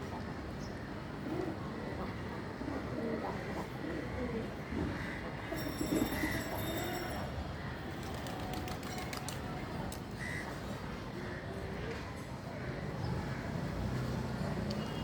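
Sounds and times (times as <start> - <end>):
steady background noise: 0.0 - 15.0
pigeons cooing: 1.2 - 6.6.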